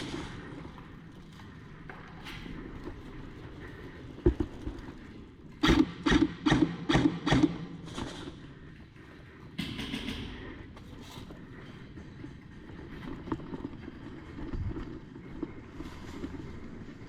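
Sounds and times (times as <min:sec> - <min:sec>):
rustle of gear: 0:10.9 - 0:17.0.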